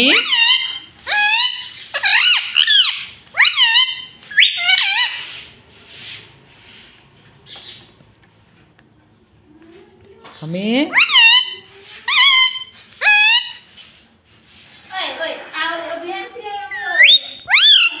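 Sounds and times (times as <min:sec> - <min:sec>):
parakeet squawking: 0:00.0 - 0:05.3, 0:10.9 - 0:13.6, 0:16.7 - 0:18.0.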